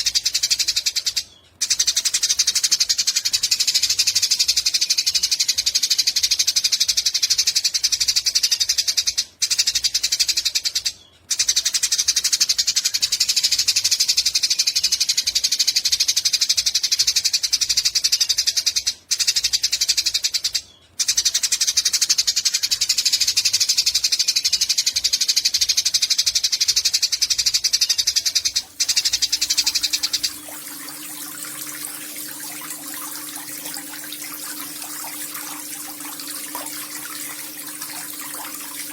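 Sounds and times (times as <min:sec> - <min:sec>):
running water: 0:28.4 - 0:38.9.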